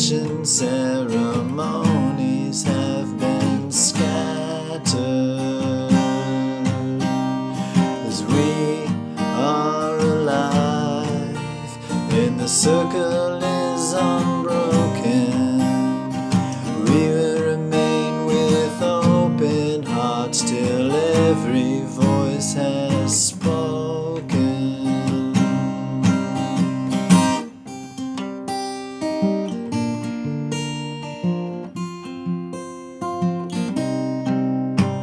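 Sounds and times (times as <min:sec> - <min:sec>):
acoustic guitar strummed and picked: 0:00.0 - 0:35.0.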